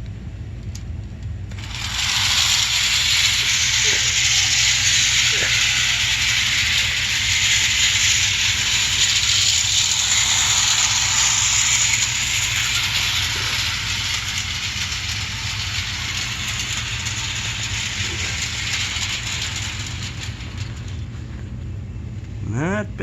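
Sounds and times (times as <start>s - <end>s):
toy train wheels rattling on rails: 1.5s - 21.8s
wind-up spring motor whirring: 1.5s - 21.8s.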